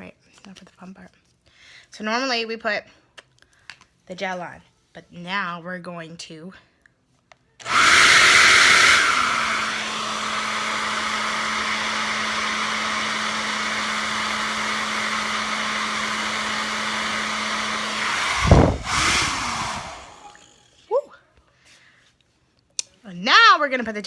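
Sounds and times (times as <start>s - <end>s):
hair dryer blowing: 7.6s - 20.7s.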